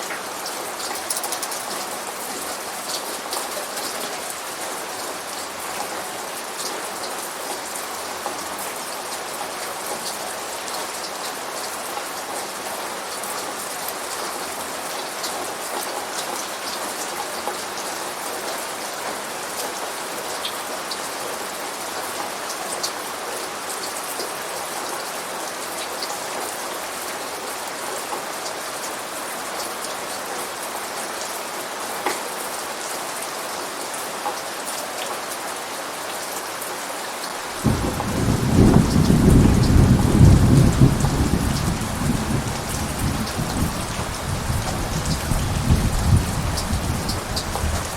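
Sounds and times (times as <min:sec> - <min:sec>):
raindrops ticking on surface: 0:00.0 - 0:17.9, 0:37.1 - 0:47.9
steady rain hiss: 0:00.0 - 0:47.9.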